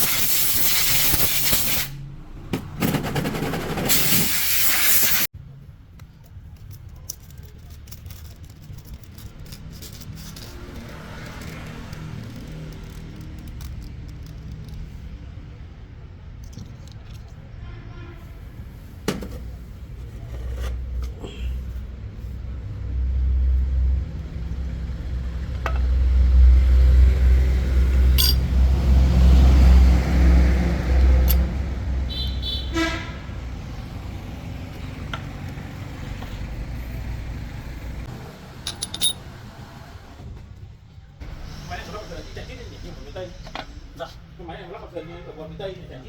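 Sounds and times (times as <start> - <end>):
metallic clicks and clinks: 28.1 - 28.5, 31.2 - 31.5, 38.6 - 39.2.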